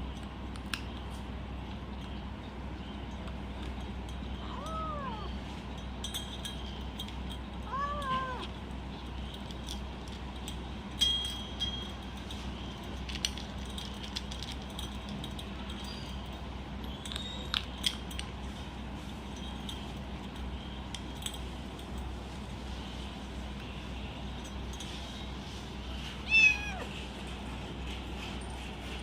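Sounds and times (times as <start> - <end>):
kibble crunching and clinking: 0.0 - 29.0
kitten calling: 4.4 - 5.4, 7.6 - 8.5, 26.2 - 27.0.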